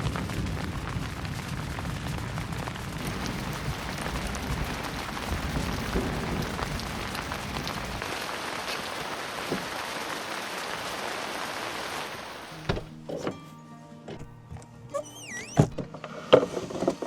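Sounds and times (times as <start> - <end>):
low rumble: 0.0 - 8.0
raindrops ticking on a surface: 0.0 - 12.7.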